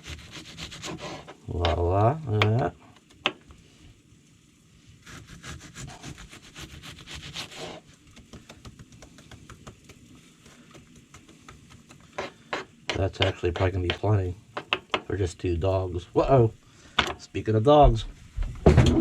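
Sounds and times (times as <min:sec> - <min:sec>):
knife sawing through food: 0:00.0 - 0:01.4, 0:05.0 - 0:07.9
knock: 0:17.9 - 0:19.0.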